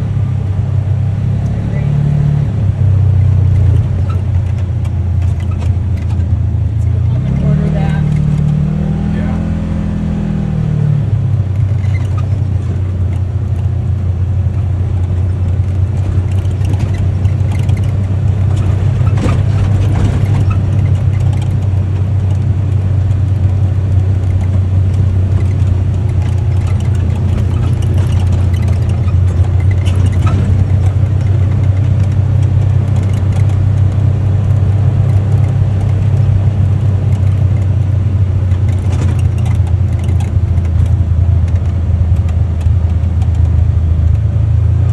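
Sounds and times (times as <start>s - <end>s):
utility vehicle engine running: 0.0s - 44.9s
light knocks or rattles: 15.0s - 22.5s, 24.2s - 34.0s, 38.5s - 44.3s.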